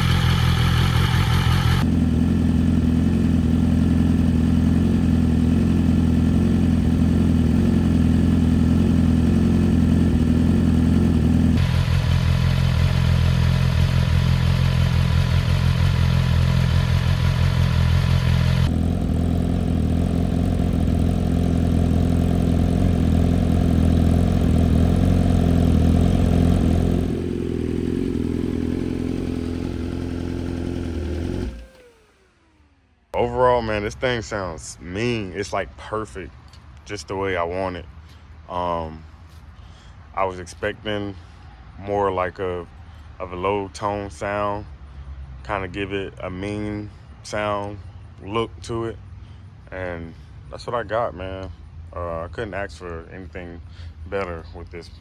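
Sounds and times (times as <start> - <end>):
motorcycle engine idling: 0.0 - 34.1.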